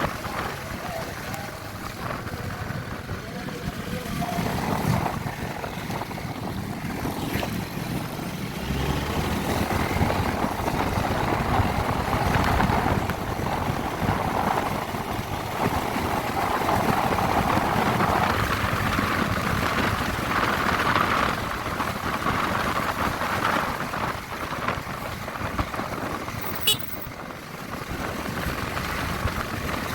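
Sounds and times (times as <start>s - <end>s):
motorcycle engine at speed: 0.0s - 29.9s
wind noise on microphone: 0.0s - 29.9s.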